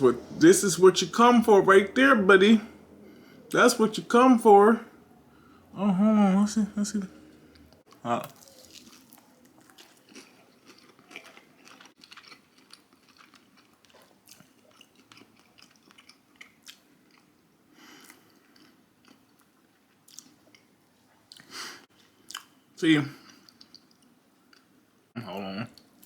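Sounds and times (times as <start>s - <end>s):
person chewing: 7.4s - 20.7s, 21.3s - 22.6s, 23.2s - 24.8s.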